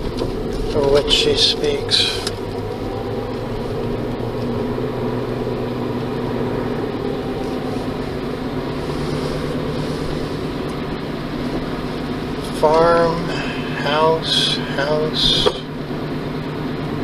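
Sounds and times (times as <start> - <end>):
car engine: 0.0 - 17.0
road noise inside car: 0.0 - 17.0.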